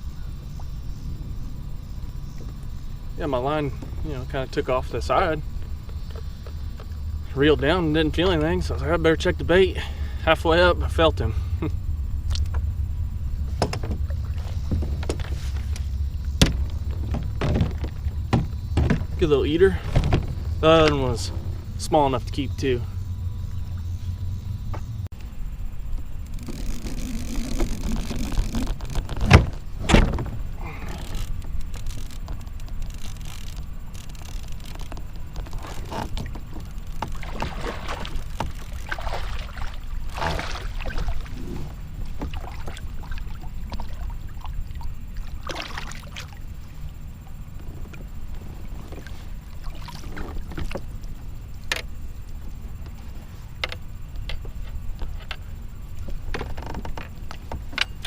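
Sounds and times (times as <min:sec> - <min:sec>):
wind rumble on microphone: 0:00.0 - 0:58.0
sharp thumps: 0:13.4 - 0:21.8
handling knocks and rustles: 0:13.5 - 0:21.5.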